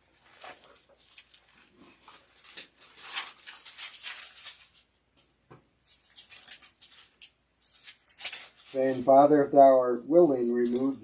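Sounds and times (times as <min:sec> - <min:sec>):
thin pages turning: 0:00.0 - 0:05.0, 0:05.8 - 0:09.3, 0:10.6 - 0:11.0.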